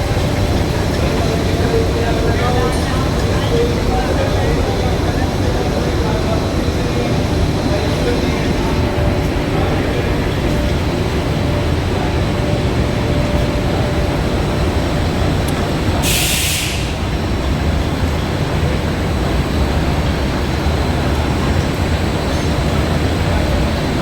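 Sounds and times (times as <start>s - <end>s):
machine rumbling and humming: 0.0s - 16.1s
hiss: 16.0s - 17.1s.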